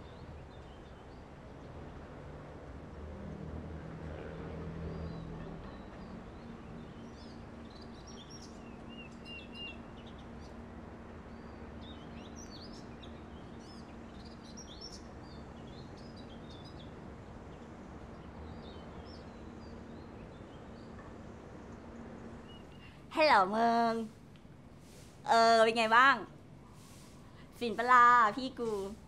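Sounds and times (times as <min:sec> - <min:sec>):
small birds chirping: 0:05.0 - 0:10.6, 0:11.3 - 0:29.0
background hiss: 0:21.2 - 0:29.0.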